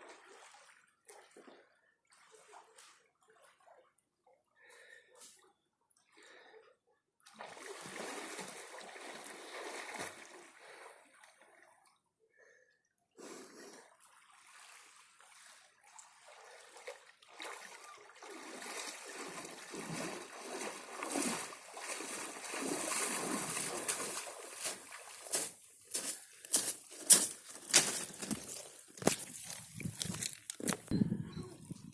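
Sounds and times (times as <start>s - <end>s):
sea water splashing: 7.3s - 10.8s, 14.3s - 26.1s.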